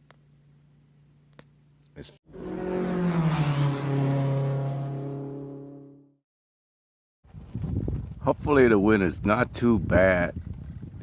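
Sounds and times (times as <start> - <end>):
wind buffeting microphone: 7.3 - 11.0.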